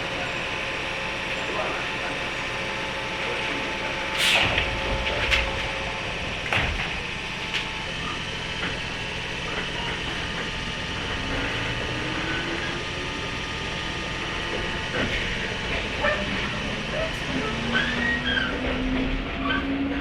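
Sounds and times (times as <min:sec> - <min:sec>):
train interior hum: 0:00.0 - 0:20.0
knocks and clatters: 0:04.2 - 0:08.9.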